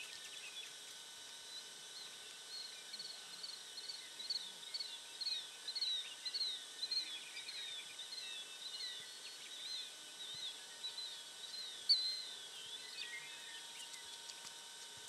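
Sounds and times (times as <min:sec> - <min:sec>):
faint high hum: 0:00.0 - 0:15.0.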